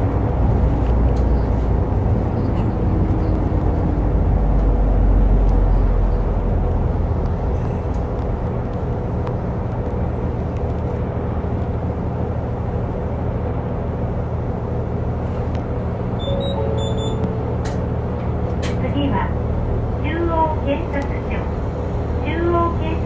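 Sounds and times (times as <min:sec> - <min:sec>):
bus engine drone: 0:00.0 - 0:23.0
road noise: 0:00.0 - 0:23.0.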